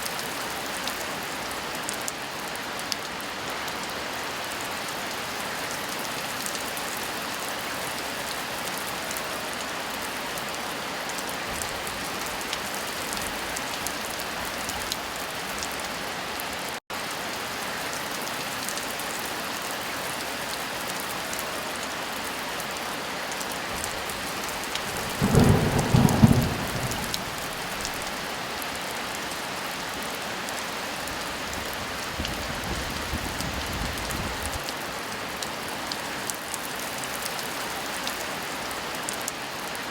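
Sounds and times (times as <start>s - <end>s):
heavy rain falling: 0.1s - 39.9s
thunder crack and rumble: 24.4s - 28.1s.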